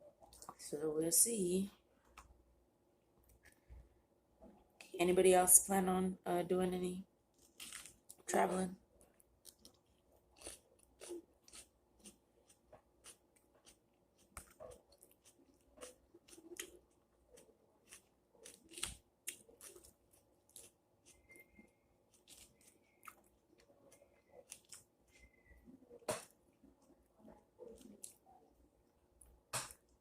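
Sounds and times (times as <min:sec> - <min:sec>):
close-up chewing: 0:07.4 - 0:08.3, 0:08.9 - 0:30.0
mouth clicks and crunches: 0:09.0 - 0:21.6.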